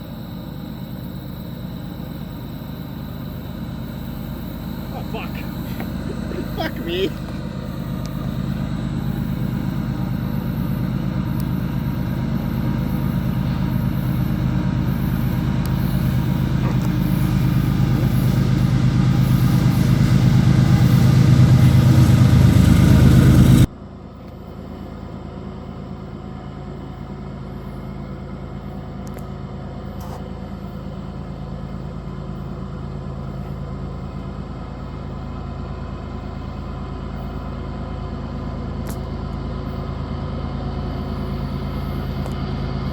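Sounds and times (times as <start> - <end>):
freight train rumbling past: 4.9 - 23.7.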